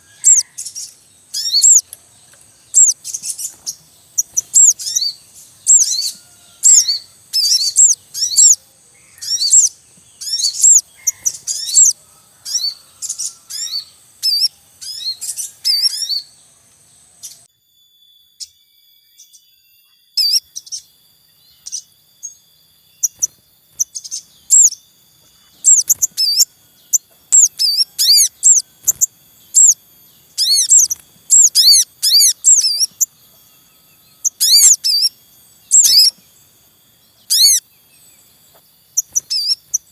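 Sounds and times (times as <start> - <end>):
birds chirping high-pitched: 0.0 - 39.9.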